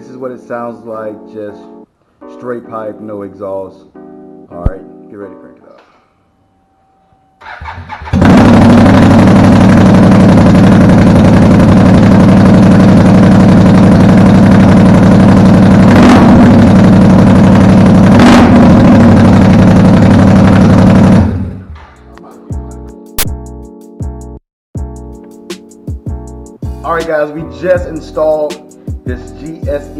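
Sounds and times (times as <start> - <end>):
engine bursts: 7.4 - 21.9
loud engine running: 8.0 - 21.9.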